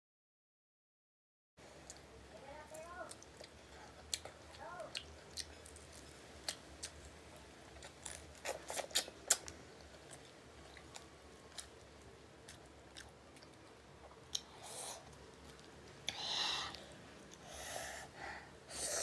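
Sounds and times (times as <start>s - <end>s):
person chewing shrimp: 3.1s - 17.7s.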